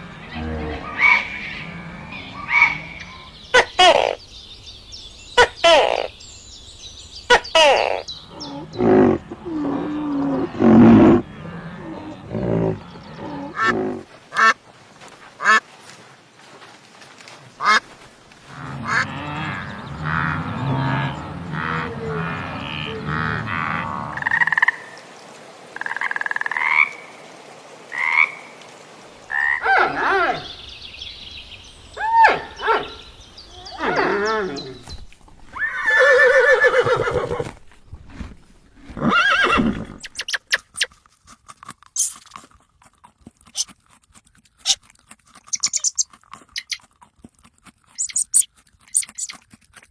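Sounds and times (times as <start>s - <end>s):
frogs croaking: 18.5s - 31.6s.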